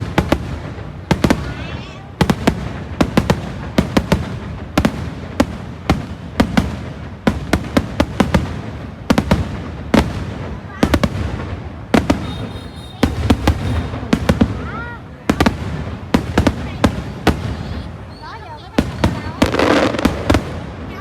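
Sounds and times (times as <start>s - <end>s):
fireworks bangs: 0.0s - 21.0s
continuous rumble: 10.3s - 21.0s.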